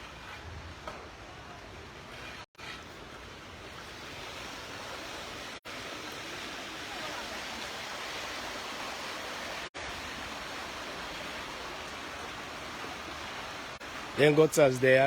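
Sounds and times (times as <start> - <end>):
rainwater rushing through drain: 3.0 - 15.0.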